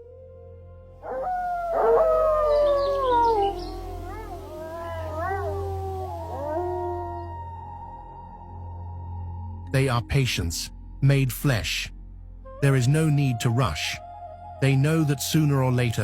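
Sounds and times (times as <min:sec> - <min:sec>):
steady low drone: 0:00.0 - 0:16.0
wolves howling: 0:01.0 - 0:08.6.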